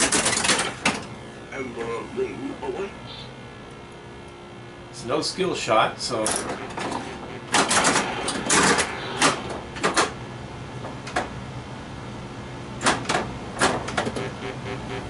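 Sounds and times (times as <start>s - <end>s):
pinball machine clacks: 0.0s - 1.1s, 6.2s - 10.2s, 12.8s - 14.3s
low steady hum: 0.0s - 15.0s.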